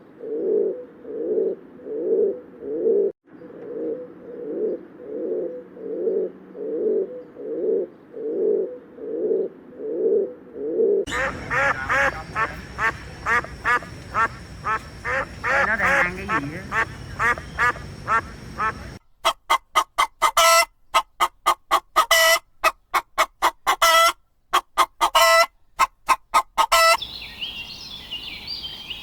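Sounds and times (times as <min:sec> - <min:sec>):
pigeons cooing: 0:11.1 - 0:19.0
ducks quacking rapidly: 0:11.1 - 0:27.0.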